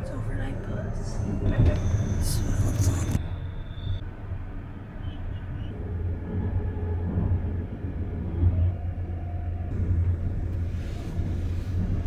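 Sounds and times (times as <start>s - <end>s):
bus rumbling: 0.0s - 12.0s.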